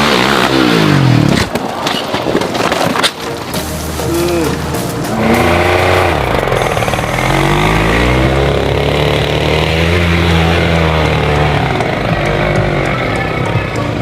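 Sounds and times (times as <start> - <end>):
dirt bike engine revving hard: 0.0 - 1.5, 5.2 - 13.2.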